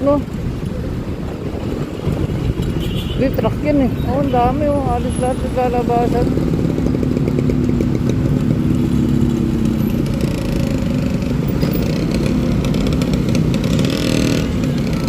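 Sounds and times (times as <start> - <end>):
road and wind rumble: 0.0 - 15.0
traffic engine hum: 0.0 - 15.0.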